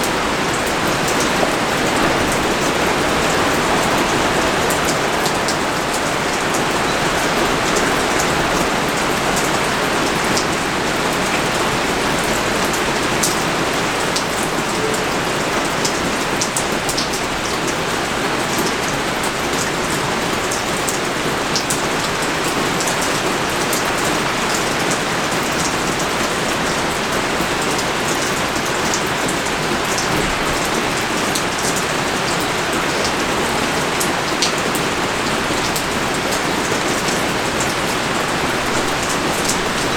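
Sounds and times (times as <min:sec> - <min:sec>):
rain hissing: 0:00.0 - 0:12.5
raindrops ticking on surfaces: 0:00.0 - 0:39.9.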